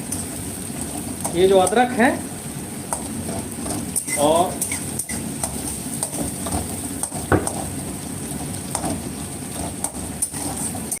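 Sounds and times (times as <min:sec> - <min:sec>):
food sizzling in oil: 0:00.0 - 0:11.0
spatula scraping a pan: 0:08.3 - 0:11.0.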